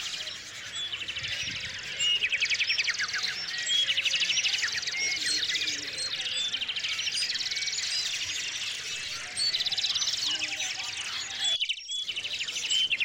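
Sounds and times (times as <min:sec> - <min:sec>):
songbirds chirping and singing: 0:00.0 - 0:13.0.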